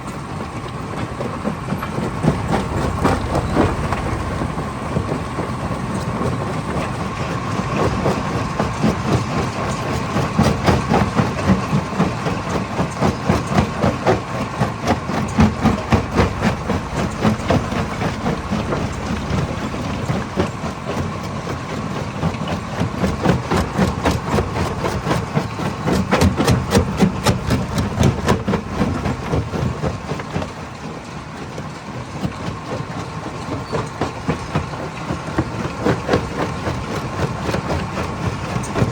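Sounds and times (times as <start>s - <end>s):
crusher machine hum: 0.9s - 10.4s, 13.1s - 30.3s.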